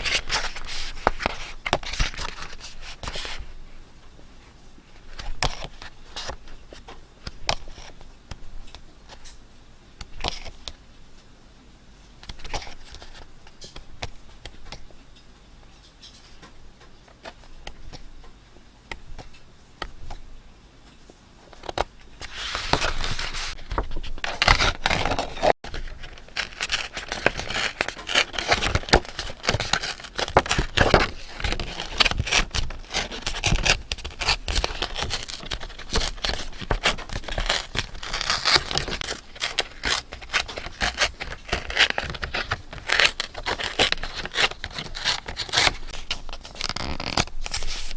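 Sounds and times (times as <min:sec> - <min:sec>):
paper rustling and scraping: 0:00.0 - 0:03.6, 0:21.5 - 0:47.9.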